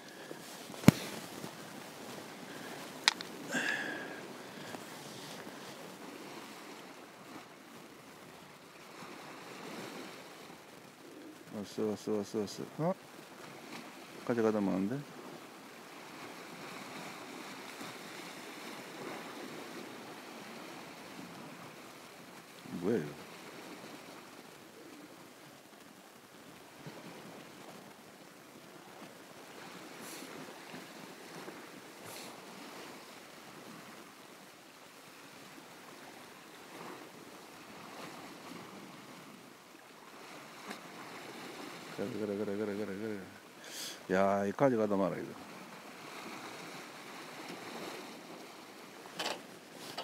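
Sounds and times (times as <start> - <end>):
sea water lapping against rocks: 0.0 - 11.6, 15.0 - 43.8, 45.4 - 50.0
faint ticks: 3.0 - 3.4.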